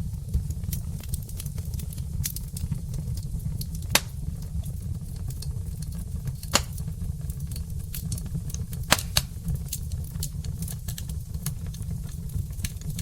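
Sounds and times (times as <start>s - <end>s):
loud fire pops: 0.0s - 13.0s
low fire rumble: 0.0s - 13.0s
wood fire crackling: 0.0s - 13.0s.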